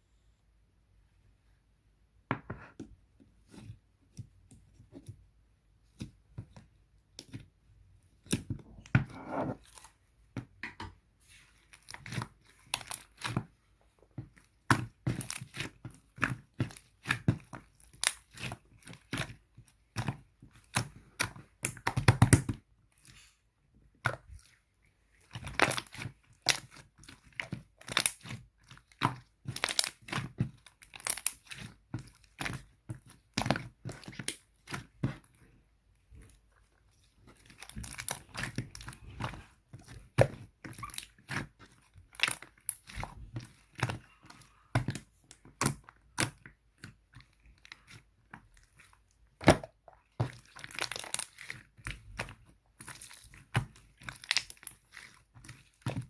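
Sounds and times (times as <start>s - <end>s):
slime crackling and popping: 14.5s - 22.6s, 25.2s - 35.4s, 37.3s - 56.0s.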